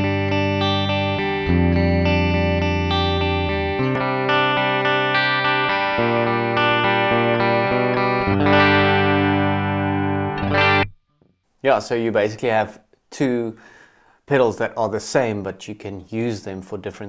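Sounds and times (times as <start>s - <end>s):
clean electric guitar chords: 0.0s - 11.0s.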